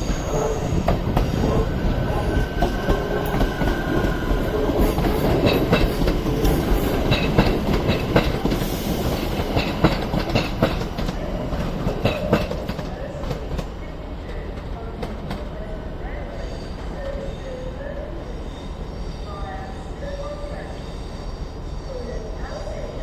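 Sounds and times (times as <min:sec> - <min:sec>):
electric train rumble: 0:00.0 - 0:23.0
train wheels clicking over rail joints: 0:02.6 - 0:13.7.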